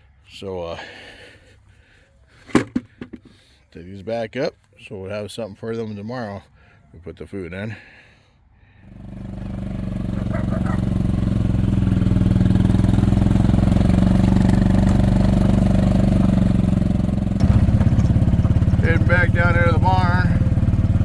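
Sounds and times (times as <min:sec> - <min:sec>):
small vehicle engine running: 0:08.8 - 0:21.0.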